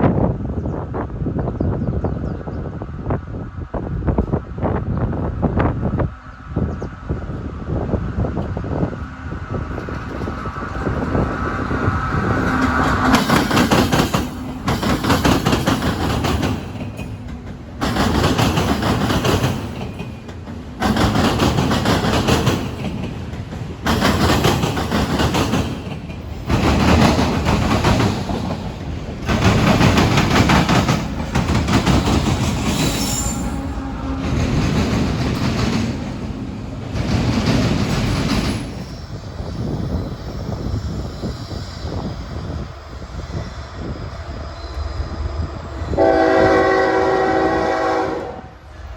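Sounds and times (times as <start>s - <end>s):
train cars rolling past: 0.0s - 48.9s
wheels clickety-clack over rails: 8.2s - 42.8s.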